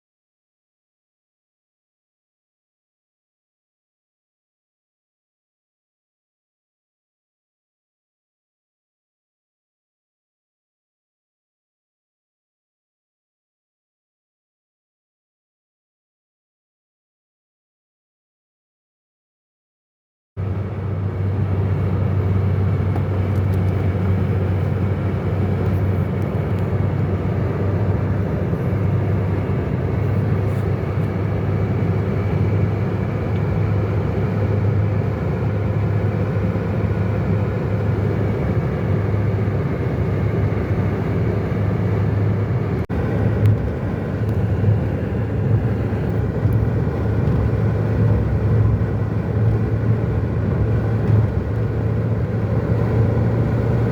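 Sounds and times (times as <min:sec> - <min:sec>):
car engine and road noise: 0:20.4 - 0:53.9.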